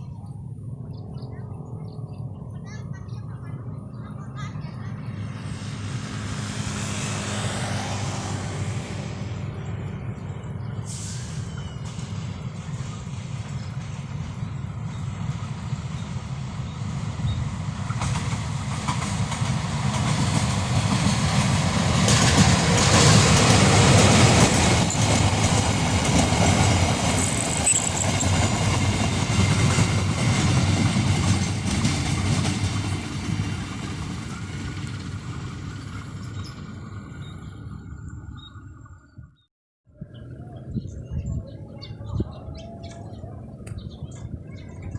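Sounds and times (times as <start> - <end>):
freight train rumbling over rails: 0.0 - 39.5.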